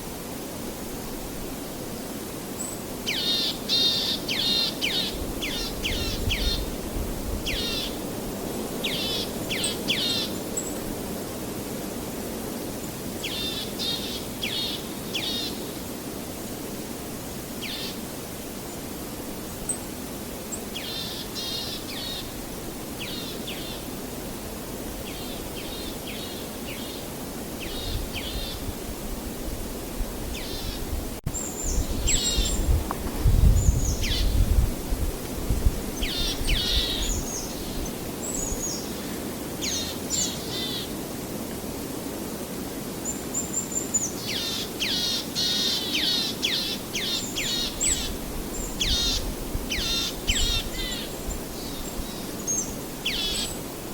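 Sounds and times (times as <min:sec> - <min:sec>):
songbirds singing: 0:02.6 - 0:06.8, 0:07.4 - 0:08.1, 0:08.8 - 0:10.9, 0:19.4 - 0:24.3, 0:24.9 - 0:28.7, 0:30.3 - 0:34.6, 0:35.7 - 0:41.0, 0:43.0 - 0:53.7.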